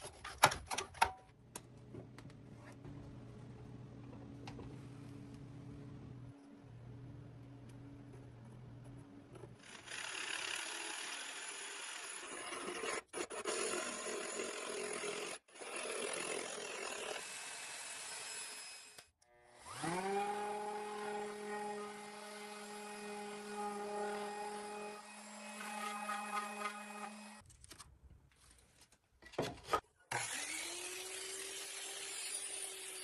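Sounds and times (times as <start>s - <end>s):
power tool motor spinning: 19.6s - 20.6s, 24.8s - 27.4s, 30.1s - 33.0s.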